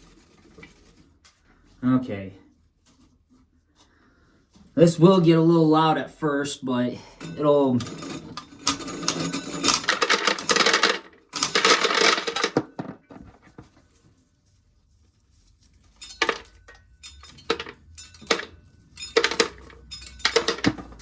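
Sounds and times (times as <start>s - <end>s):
corn kernels rattling into metal pail: 7.8s - 13.0s, 15.9s - 21.0s.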